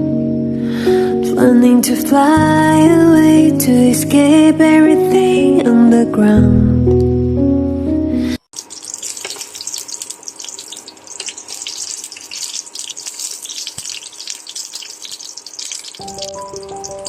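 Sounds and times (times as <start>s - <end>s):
soft background music: 0.0s - 8.4s, 15.9s - 17.0s
tap water splashing into sink: 8.6s - 10.1s.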